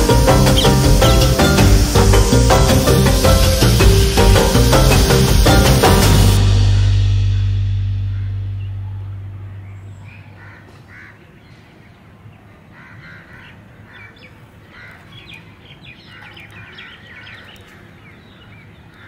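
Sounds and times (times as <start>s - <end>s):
birds calling: 0.0s - 7.0s, 8.0s - 12.0s, 12.7s - 19.0s
background music: 0.0s - 10.2s.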